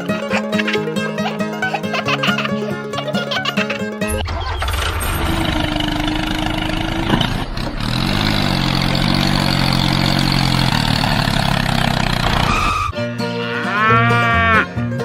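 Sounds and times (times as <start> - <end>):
engine running: 4.1 - 13.0.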